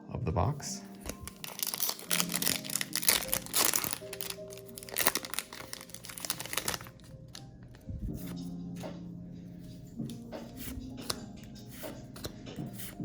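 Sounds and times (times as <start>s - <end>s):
background music: 0.0s - 13.0s
foil wrapper crinkling: 0.9s - 7.5s.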